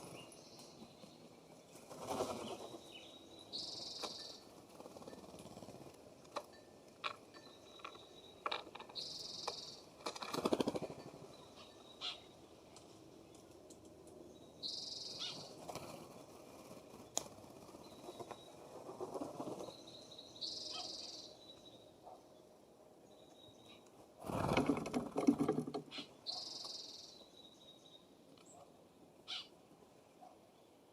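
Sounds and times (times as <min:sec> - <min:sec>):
wingbeats flurry: 0:01.7 - 0:03.0, 0:03.9 - 0:07.2, 0:07.8 - 0:11.6, 0:15.2 - 0:19.9
birds pecking and tapping: 0:04.0 - 0:11.3, 0:24.3 - 0:26.0.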